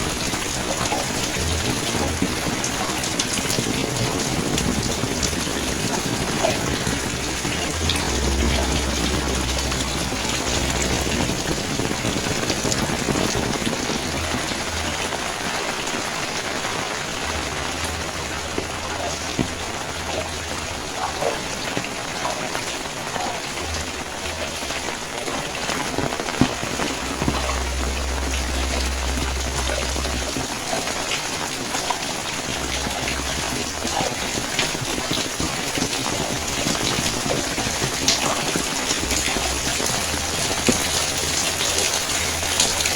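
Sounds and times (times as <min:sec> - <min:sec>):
low rumble: 0:00.0 - 0:42.9
rain falling: 0:00.0 - 0:42.9.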